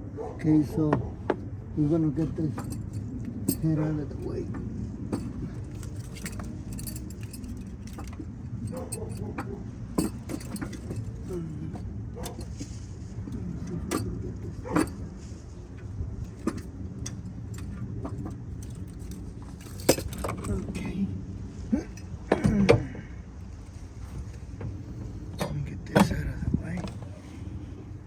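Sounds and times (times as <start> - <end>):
low hum: 0.0 - 28.0
metal tools clinking: 2.0 - 20.8.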